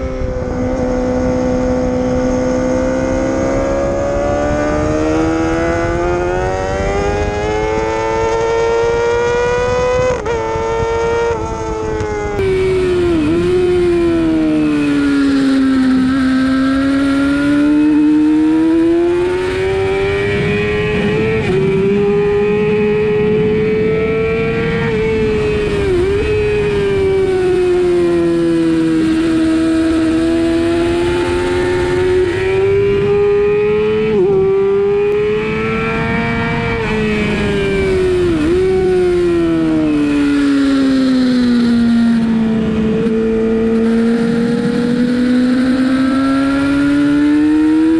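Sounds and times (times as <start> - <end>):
motorcycle engine at high revs: 0.0 - 47.9
wind noise: 0.0 - 47.9.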